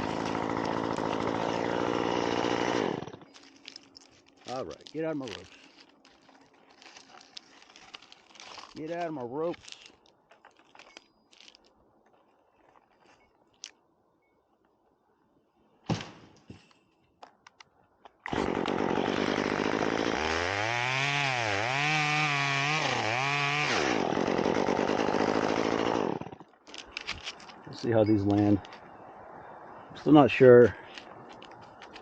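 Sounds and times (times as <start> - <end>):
chainsaw cutting wood: 0.0 - 3.8, 18.3 - 26.5
climbing gear rustling and clicks: 3.2 - 13.7, 26.6 - 27.6, 30.9 - 32.0.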